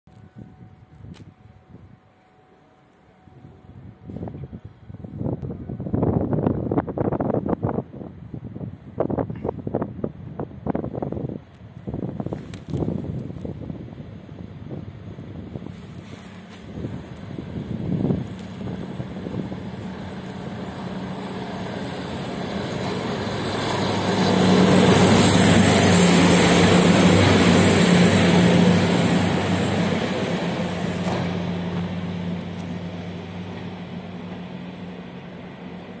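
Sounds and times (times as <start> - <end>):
diesel engine drone: 13.6 - 36.0.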